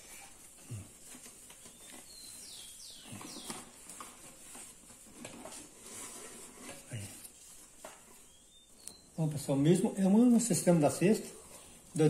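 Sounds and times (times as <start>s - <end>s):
paper rustling and tapping: 0.0s - 2.4s, 3.0s - 8.3s
bird chirping: 0.1s - 4.2s, 8.0s - 10.8s.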